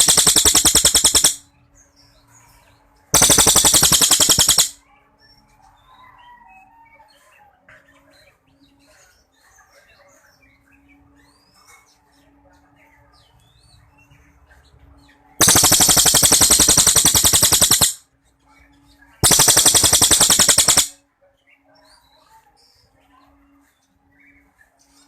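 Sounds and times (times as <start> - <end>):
bird singing rapid note runs: 0.0 - 1.4, 3.2 - 4.8, 15.4 - 18.0, 19.2 - 20.9.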